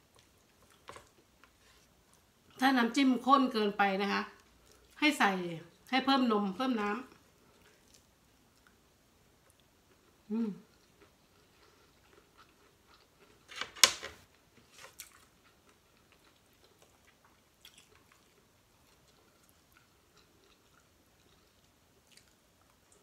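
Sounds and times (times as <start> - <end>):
person chewing with mouth sounds: 9.4 - 13.5, 14.9 - 23.0.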